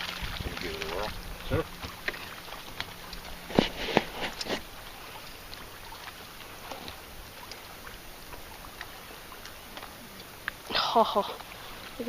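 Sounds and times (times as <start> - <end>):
water lapping around boat: 0.0 - 12.0
faint ticks: 6.8 - 10.7.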